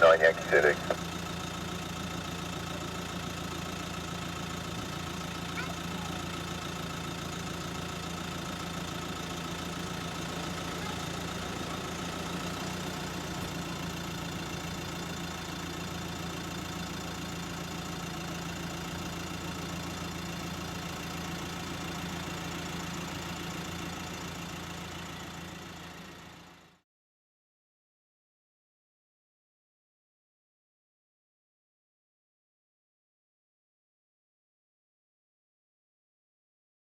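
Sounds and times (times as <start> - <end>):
jet engines idling: 0.0 - 16.6.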